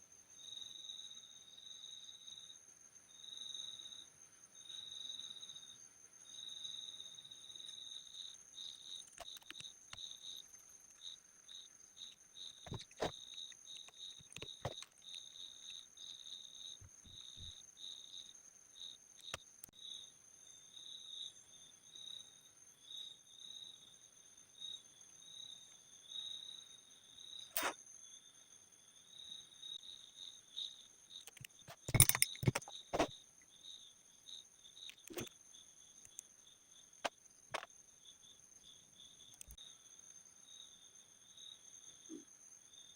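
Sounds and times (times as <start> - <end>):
louder clicks and clatter: 31.4 - 33.1.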